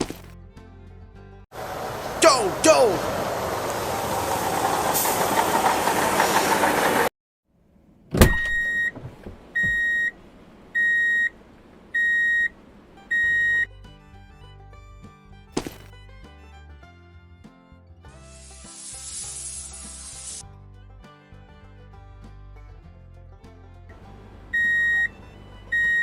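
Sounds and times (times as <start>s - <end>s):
music: 0.4s - 1.4s, 13.0s - 26.0s.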